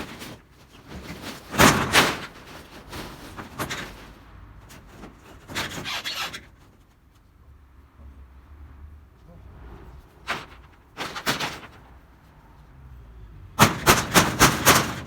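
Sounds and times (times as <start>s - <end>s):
metal roofing sheets clattering: 0.0s - 7.0s, 10.0s - 12.1s, 13.6s - 15.0s.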